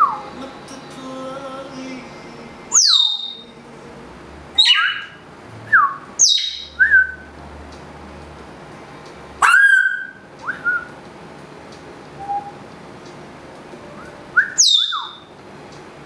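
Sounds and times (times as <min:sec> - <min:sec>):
parrot whistles and squawks: 0:02.7 - 0:03.5, 0:04.6 - 0:07.3, 0:09.4 - 0:11.0, 0:12.2 - 0:12.6, 0:14.0 - 0:15.3.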